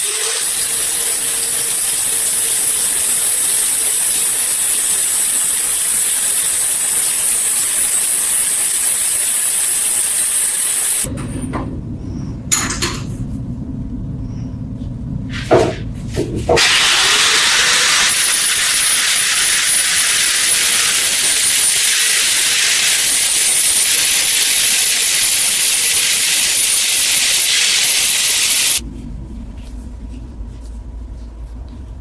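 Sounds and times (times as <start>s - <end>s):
loud high-pitched hiss: 0.0s - 11.1s, 16.6s - 28.8s
low rumble: 11.1s - 17.3s, 28.8s - 32.0s.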